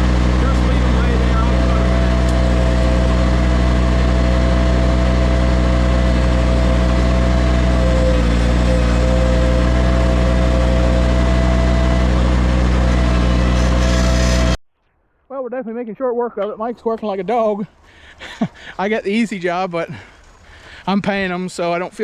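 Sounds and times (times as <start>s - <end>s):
loader engine running: 0.0s - 14.6s.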